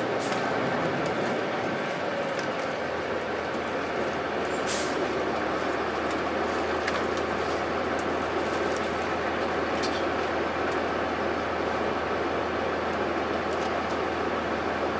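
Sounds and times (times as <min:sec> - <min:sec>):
road and interior rattle: 0:00.0 - 0:10.6
bus diesel engine running: 0:00.0 - 0:14.9.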